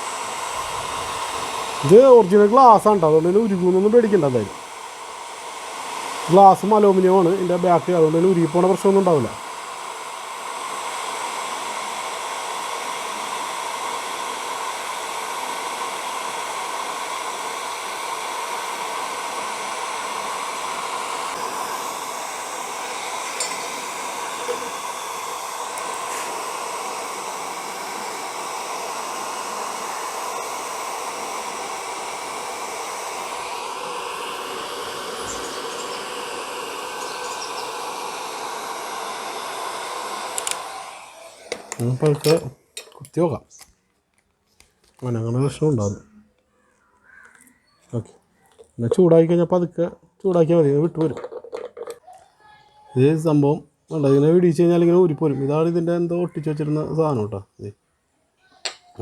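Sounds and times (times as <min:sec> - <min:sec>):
hot air gun blowing: 0:00.0 - 0:42.6.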